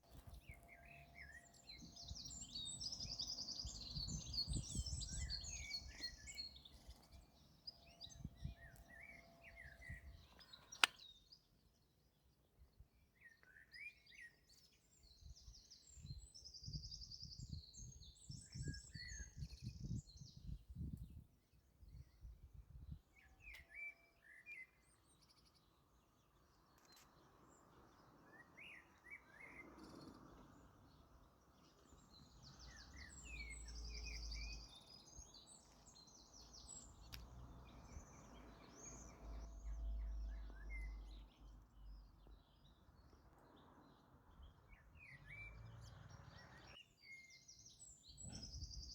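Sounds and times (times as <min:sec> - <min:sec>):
songbirds chirping and trilling: 0:00.0 - 0:48.9
sharp click: 0:10.4 - 0:11.0.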